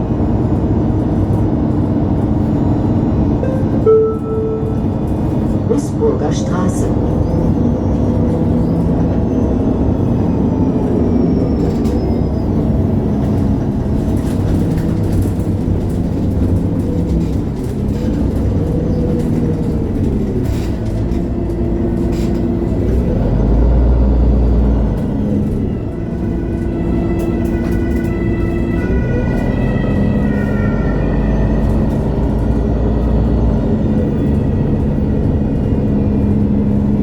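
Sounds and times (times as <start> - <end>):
bus diesel engine: 0.0 - 37.0.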